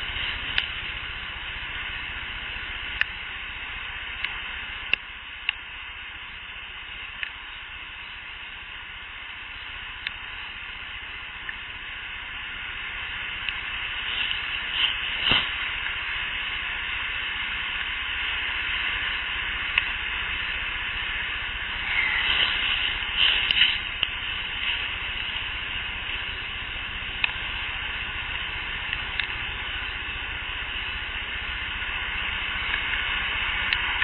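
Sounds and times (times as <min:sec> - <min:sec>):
recorder hiss: 0:00.0 - 0:34.0
sharp clicks and snaps: 0:27.2 - 0:27.4, 0:28.4 - 0:29.4.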